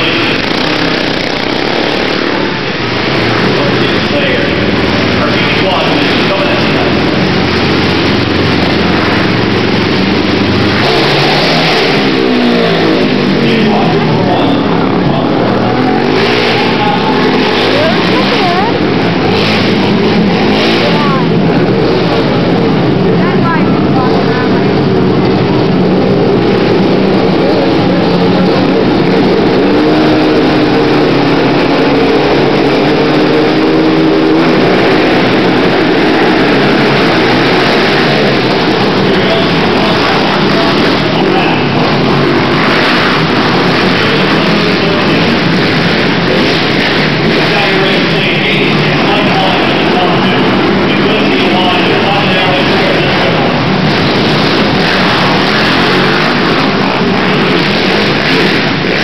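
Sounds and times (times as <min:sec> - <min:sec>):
quad engines revving: 0:00.0 - 0:59.0.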